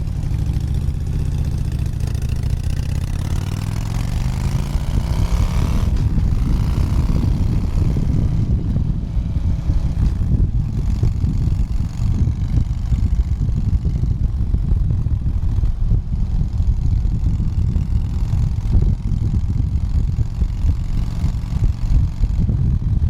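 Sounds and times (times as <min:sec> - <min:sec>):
motorcycle engine rumble: 0:00.0 - 0:23.0
rushing air fluttering: 0:00.0 - 0:23.0.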